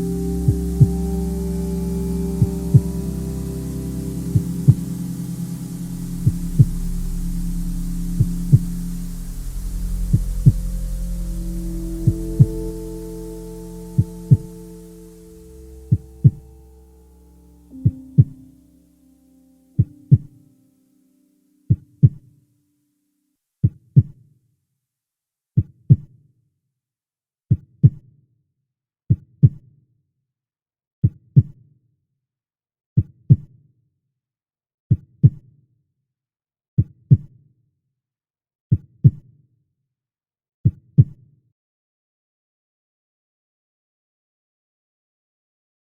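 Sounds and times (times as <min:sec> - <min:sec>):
heartbeat lub-dub: 0:00.0 - 0:16.8
held musical note: 0:00.0 - 0:20.5.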